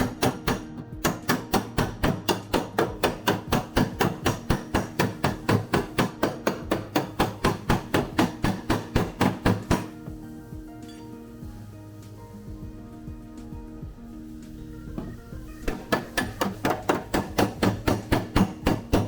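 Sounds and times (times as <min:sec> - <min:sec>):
hammer tapping on steel panel: 0:00.0 - 0:10.2, 0:14.9 - 0:19.0
background music: 0:00.0 - 0:19.0.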